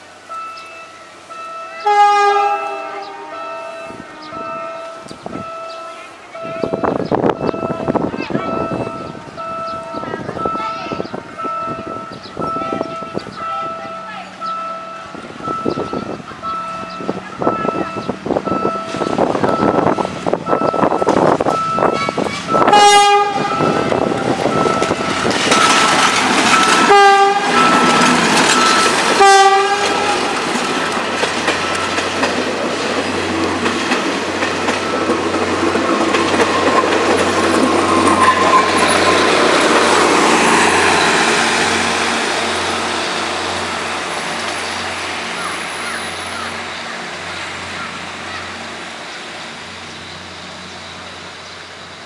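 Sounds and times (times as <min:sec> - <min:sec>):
wheels clicking on rail joints: 0:00.0 - 0:52.0
locomotive horn blasts: 0:01.4 - 0:07.0, 0:21.7 - 0:25.7, 0:26.6 - 0:28.0, 0:28.6 - 0:30.5
repeating high beep: 0:05.4 - 0:13.6, 0:14.4 - 0:22.7, 0:23.5 - 0:26.9.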